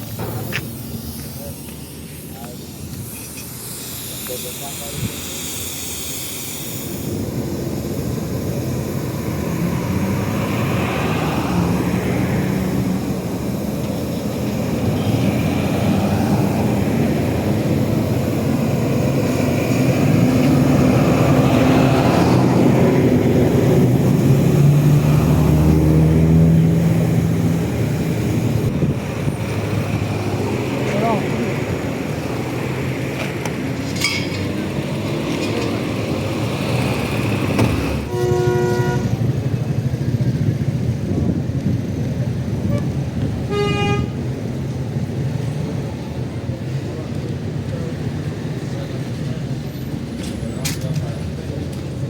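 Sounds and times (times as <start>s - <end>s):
car engine running: 0.0s - 33.9s.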